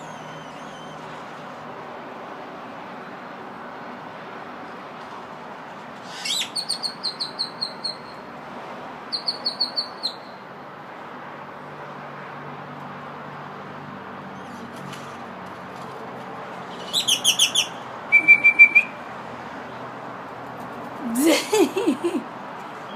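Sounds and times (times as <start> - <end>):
songbird calling: 6.1 - 8.2, 9.1 - 10.3, 16.7 - 19.0.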